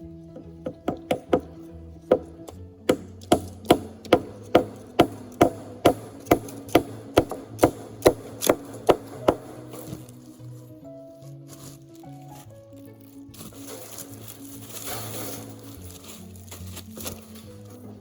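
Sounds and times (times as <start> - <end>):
background music with held notes: 0.0 - 18.0
hammer blows on wood: 0.6 - 10.1.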